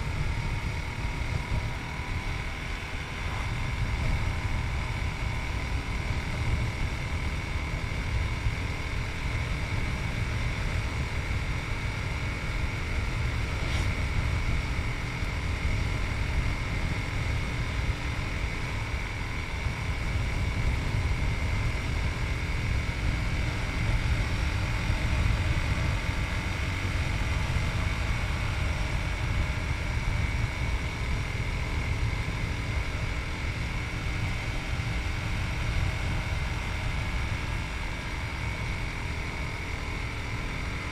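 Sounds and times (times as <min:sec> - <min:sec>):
motorcycle engine cruising: 0:00.0 - 0:40.9
wind rush: 0:13.2 - 0:14.6.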